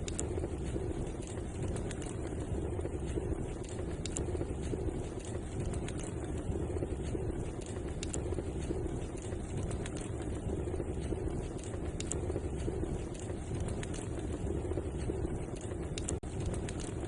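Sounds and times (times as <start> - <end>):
fire crackles and pops: 0.0 - 17.0
wood fire burning: 0.0 - 17.0.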